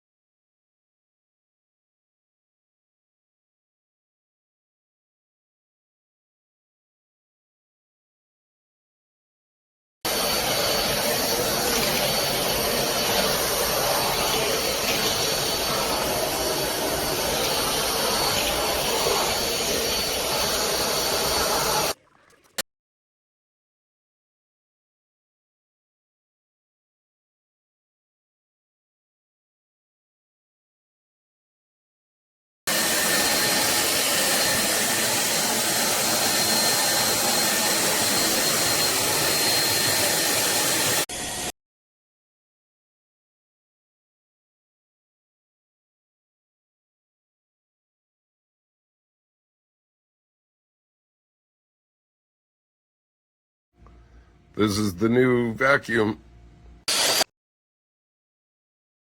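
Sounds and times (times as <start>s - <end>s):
stick vacuum running: 10.1s - 22.0s, 32.7s - 41.5s, 56.9s - 57.3s.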